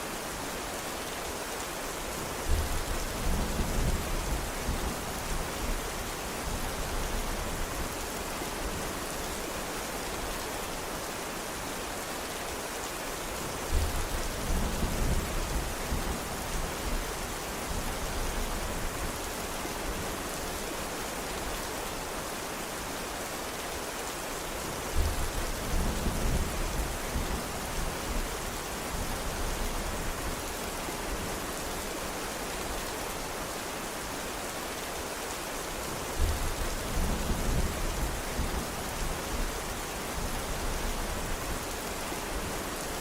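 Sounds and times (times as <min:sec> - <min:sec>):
steady rain falling: 0:00.0 - 0:43.0.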